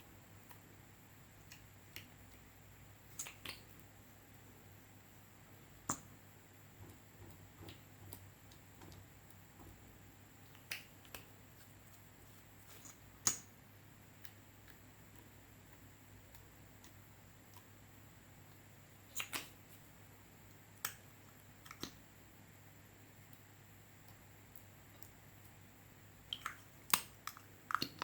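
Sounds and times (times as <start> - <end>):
slime clicking and popping: 26.3 - 28.0.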